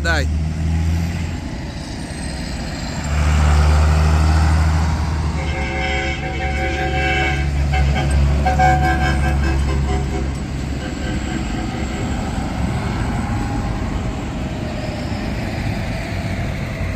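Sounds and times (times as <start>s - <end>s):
tractor engines passing: 0.0s - 16.9s
horn blasts and toots: 5.1s - 13.4s.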